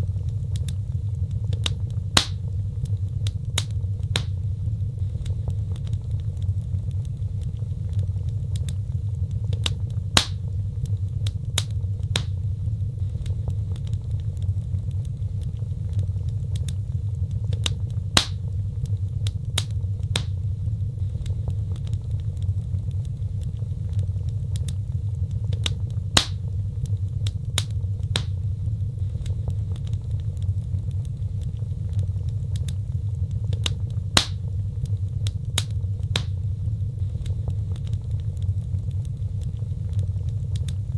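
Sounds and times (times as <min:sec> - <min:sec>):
fire crackling pops: 0:00.0 - 0:40.9
wood fire roaring: 0:00.0 - 0:40.9.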